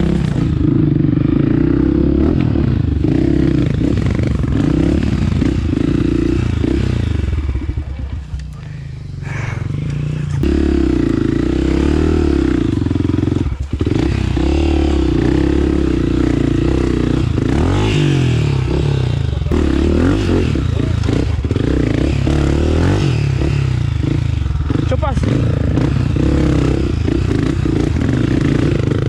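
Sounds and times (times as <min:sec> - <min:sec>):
trail bike engine revving: 0:00.0 - 0:29.0.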